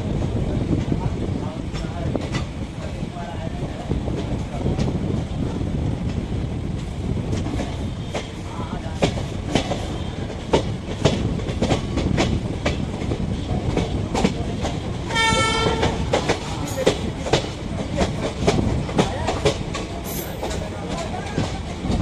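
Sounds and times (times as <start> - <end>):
clickety-clack of rail joints: 0.0 - 22.0
train wheels rumbling on rail: 0.0 - 22.0
locomotive horn blast: 15.1 - 16.0.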